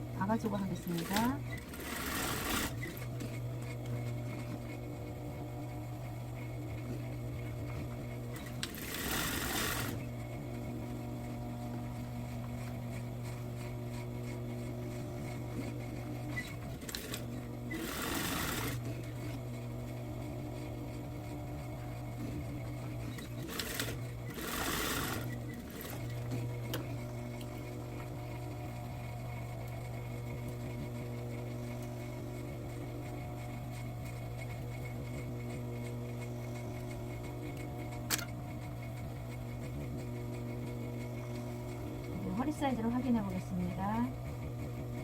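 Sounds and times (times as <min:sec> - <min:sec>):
sewing machine stitching: 0:00.2 - 0:04.8, 0:07.6 - 0:10.6, 0:12.4 - 0:19.5, 0:20.5 - 0:30.8.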